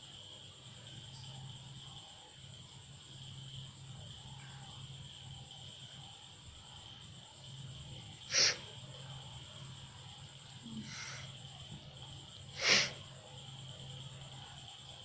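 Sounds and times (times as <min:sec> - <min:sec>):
cat breathing slowly: 0:08.3 - 0:08.7, 0:10.7 - 0:11.4, 0:12.5 - 0:13.0
cat sneeze-like snort: 0:08.3 - 0:08.7, 0:12.6 - 0:13.0.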